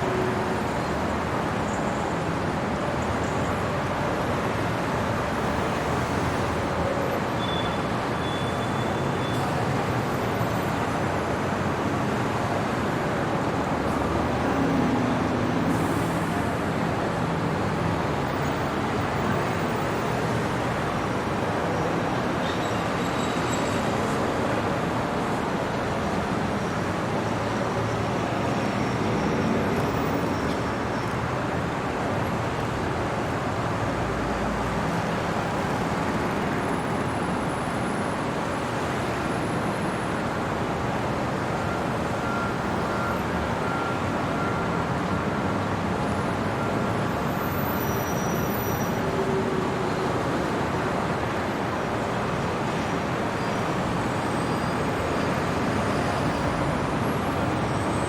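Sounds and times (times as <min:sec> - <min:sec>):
city traffic noise: 0:00.0 - 0:58.0.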